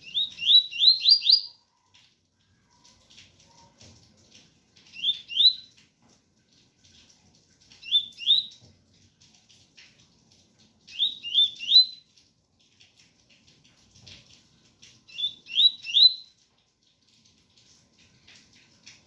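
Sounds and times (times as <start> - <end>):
bird whistling song: 0.0 - 1.6, 4.9 - 5.7, 7.8 - 8.6, 10.9 - 12.0, 15.1 - 16.3.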